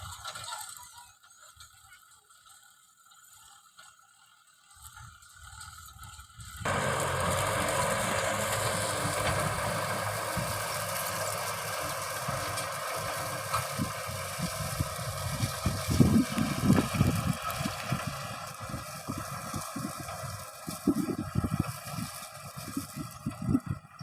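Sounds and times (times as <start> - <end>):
broad rushing noise: 6.6 - 23.3
tractor diesel engine running: 6.6 - 24.0.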